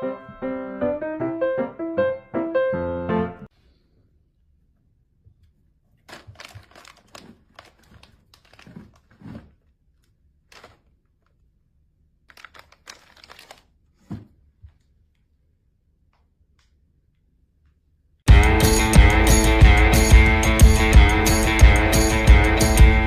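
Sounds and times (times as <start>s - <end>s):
rustling and crinkling: 5.2s - 11.6s, 12.2s - 15.3s.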